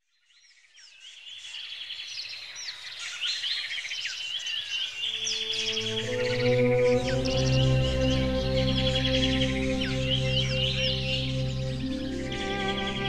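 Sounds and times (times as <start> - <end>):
birds chirping and trilling: 0.8 - 13.0
soft music with low notes: 5.1 - 13.0.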